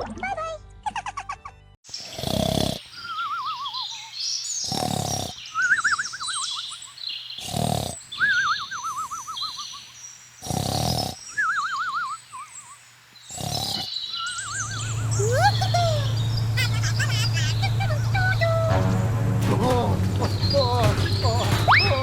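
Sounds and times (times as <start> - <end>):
high chirps: 13.8 - 19.3.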